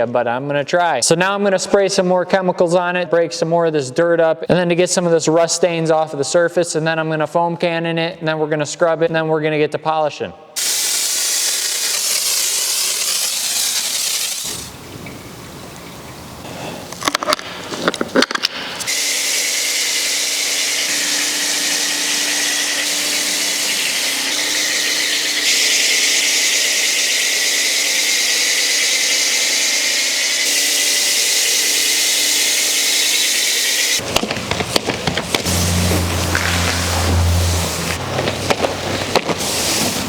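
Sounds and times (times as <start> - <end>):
pressure washer spray hiss: 10.6 - 14.8, 18.7 - 34.0, 35.4 - 40.0
pump motor hum: 10.6 - 40.0.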